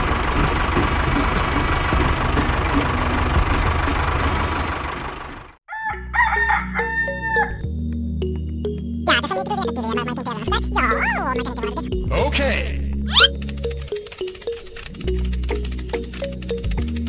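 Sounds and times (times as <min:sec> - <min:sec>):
tractor engine running: 0:00.0 - 0:05.6, 0:13.2 - 0:17.0
rooster crowing: 0:05.7 - 0:07.6.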